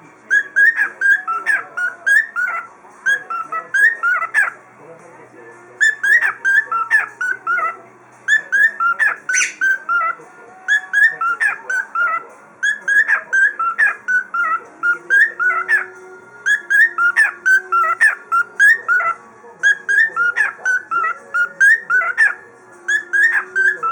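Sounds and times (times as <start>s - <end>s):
cockatiel whistling: 0.3s - 4.6s, 5.8s - 23.9s.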